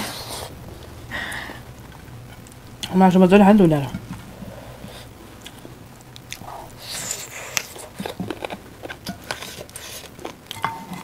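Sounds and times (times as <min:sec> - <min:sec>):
chewing and mouth smacks: 0:06.2 - 0:10.6.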